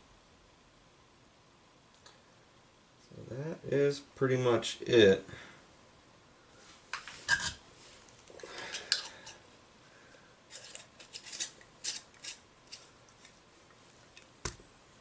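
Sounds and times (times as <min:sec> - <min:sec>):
plumbing parts handled: 0:07.0 - 0:07.6, 0:10.5 - 0:13.4.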